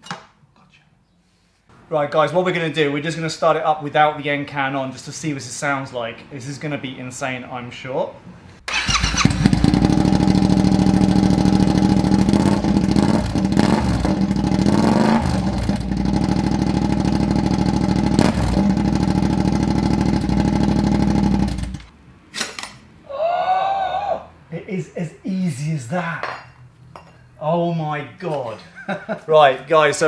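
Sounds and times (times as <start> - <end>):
motorcycle engine idling and revving: 8.7 - 21.9.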